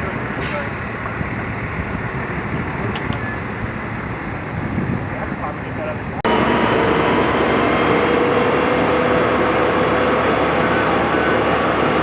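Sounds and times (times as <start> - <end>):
large engine running: 6.2 - 12.0.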